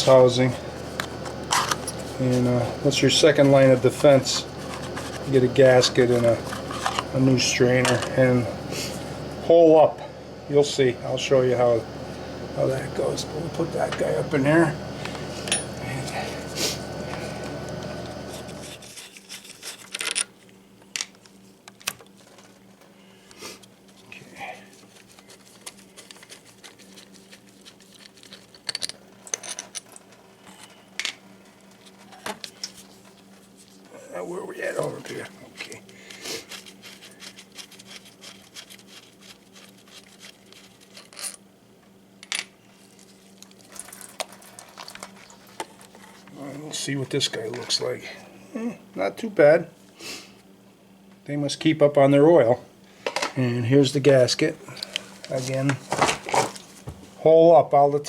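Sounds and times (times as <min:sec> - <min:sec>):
steady background hum: 0:00.0 - 0:58.0
small metal parts clicking and scraping: 0:18.8 - 0:20.3, 0:28.0 - 0:31.2, 0:39.6 - 0:41.4.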